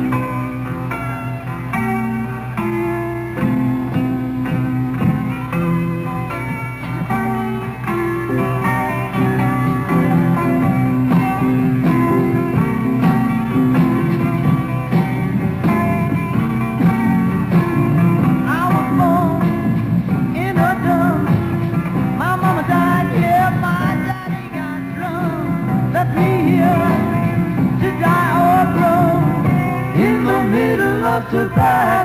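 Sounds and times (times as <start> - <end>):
guitars and bass: 0.0 - 32.0
person singing: 18.4 - 21.6, 22.2 - 32.0.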